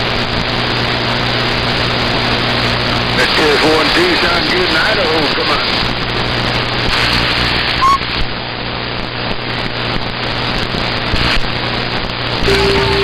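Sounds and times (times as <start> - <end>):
radio static hiss: 0.2 - 8.2
steady radio tone: 3.2 - 5.9, 12.5 - 13.0.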